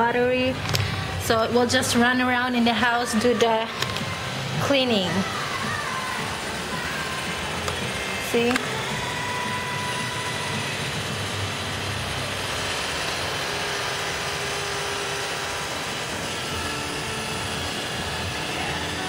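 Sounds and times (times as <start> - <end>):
faint whining tones: 0.0 - 19.0
robot vacuum whirring: 0.6 - 19.0.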